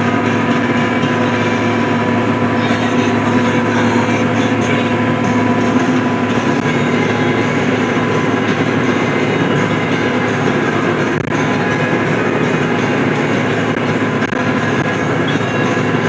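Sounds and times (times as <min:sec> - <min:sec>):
hay baler machinery working: 0:00.0 - 0:16.0
tractor engine running: 0:00.0 - 0:16.0.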